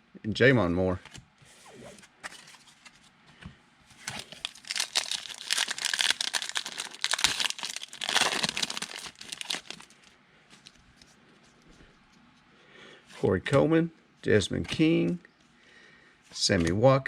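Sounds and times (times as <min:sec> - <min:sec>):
plastic wrapper crinkling: 0:04.1 - 0:10.8.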